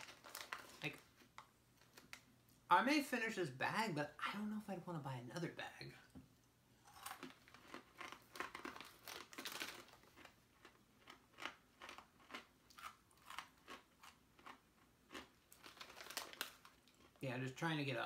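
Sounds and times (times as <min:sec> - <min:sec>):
snack bag rustling: 0:00.0 - 0:02.3, 0:07.0 - 0:17.2
chewing crunchy snacks: 0:06.8 - 0:17.2.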